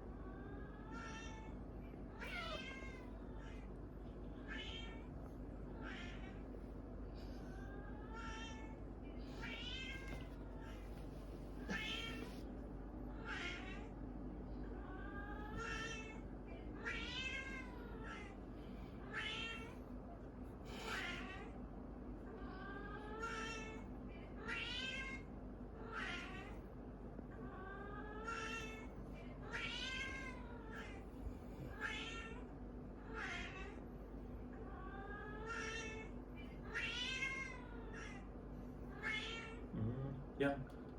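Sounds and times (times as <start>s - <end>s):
cat meowing in yowls: 2.2s - 3.1s, 35.4s - 38.2s.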